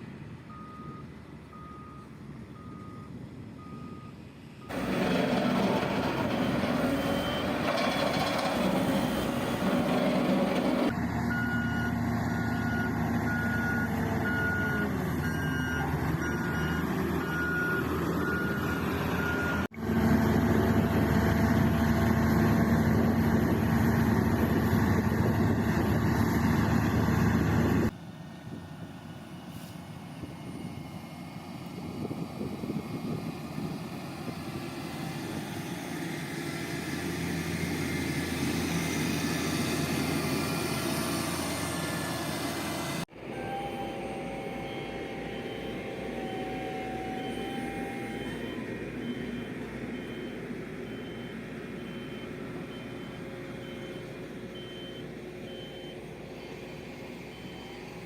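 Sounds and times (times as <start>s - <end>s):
construction machinery engine: 0.1s - 58.0s
reversing alarm beeping: 0.5s - 19.7s, 43.3s - 56.0s, 57.3s - 58.0s.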